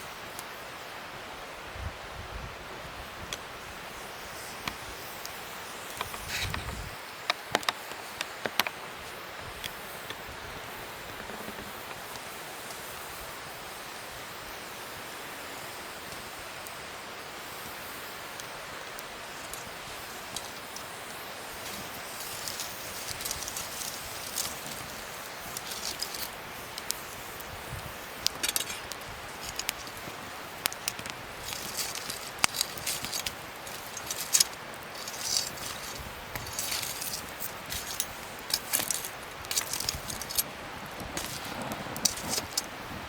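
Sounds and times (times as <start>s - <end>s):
wood fire hissing: 0.0s - 43.0s
fire crackling pops: 3.2s - 43.0s
brief rustle: 5.9s - 6.9s, 30.7s - 42.7s.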